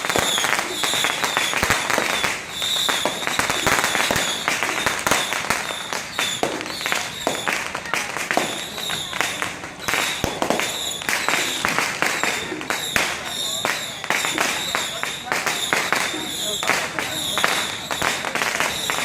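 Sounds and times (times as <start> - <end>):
crowd voices: 0.0 - 19.0
firecrackers popping: 0.0 - 19.0.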